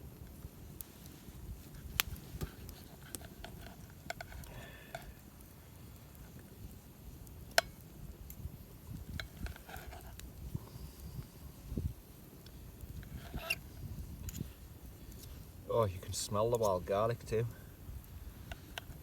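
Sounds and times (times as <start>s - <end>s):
wind rumble on microphone: 8.0s - 16.3s.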